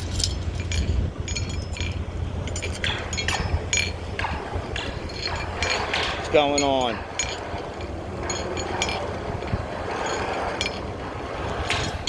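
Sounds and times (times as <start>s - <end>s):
steel striking steel clinks: 0.0s - 10.9s.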